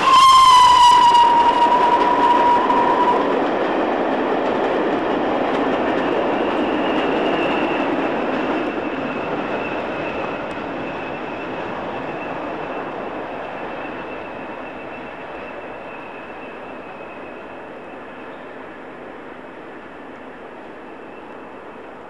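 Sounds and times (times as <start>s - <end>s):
train running on rails: 0.0s - 22.0s.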